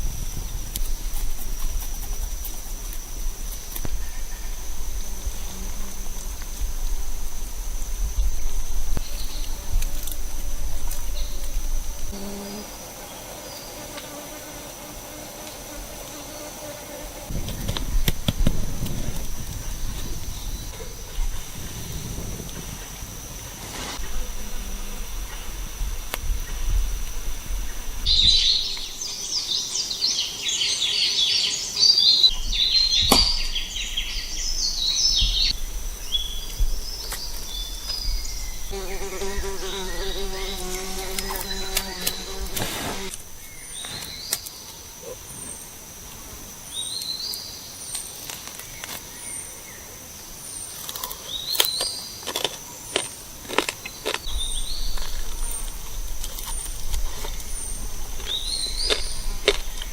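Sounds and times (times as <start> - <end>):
high insect whine: 0.0 - 59.9
low pitched drone: 3.9 - 12.2
birds chirping and singing: 28.1 - 44.4.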